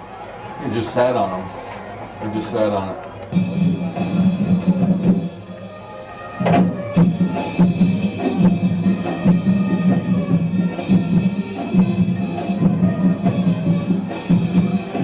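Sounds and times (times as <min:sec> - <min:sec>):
marching band playing: 0:00.4 - 0:15.0
loud drum hit: 0:06.4 - 0:15.0.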